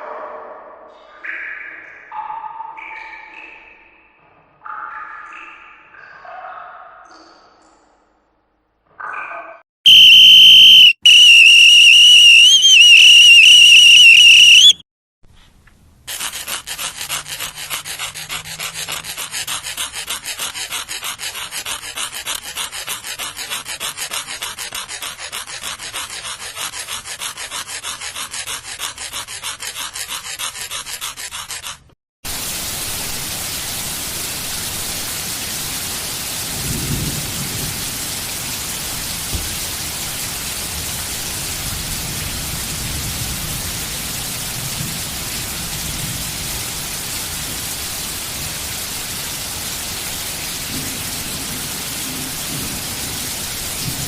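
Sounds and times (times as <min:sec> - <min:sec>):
shrill whistle-like tone: 0:09.9 - 0:14.8.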